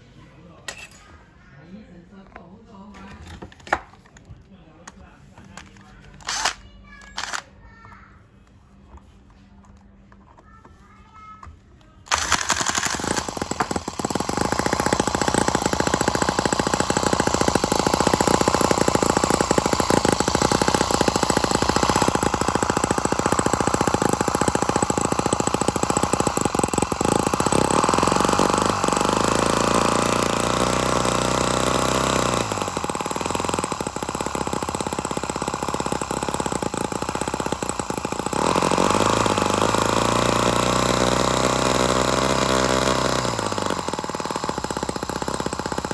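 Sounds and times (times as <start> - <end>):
small model engine running: 5.5 - 7.4, 12.1 - 45.9.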